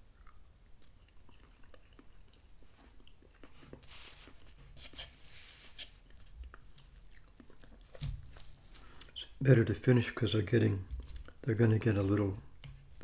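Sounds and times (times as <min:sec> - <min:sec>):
faint chewing: 0:00.0 - 0:04.7, 0:05.8 - 0:09.3, 0:10.6 - 0:12.3
fork scraping a paper plate: 0:03.8 - 0:06.0.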